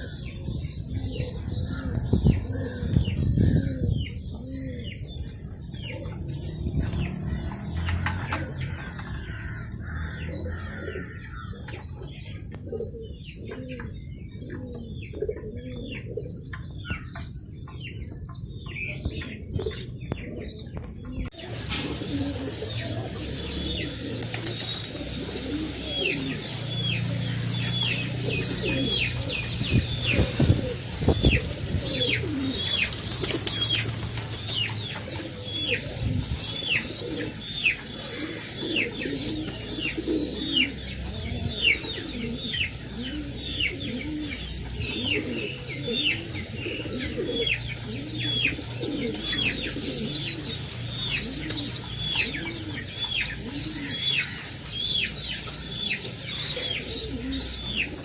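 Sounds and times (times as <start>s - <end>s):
pigeon chicks squeaking: 0.0s - 58.0s
pigeons cooing: 0.0s - 58.0s
wings flapping: 32.6s - 36.6s.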